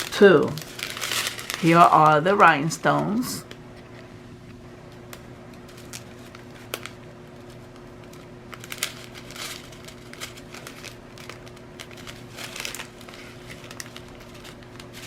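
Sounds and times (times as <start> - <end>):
plastic bags crinkling and clicking: 0.0 - 3.6, 5.1 - 15.0
faint steady hum: 0.0 - 15.0.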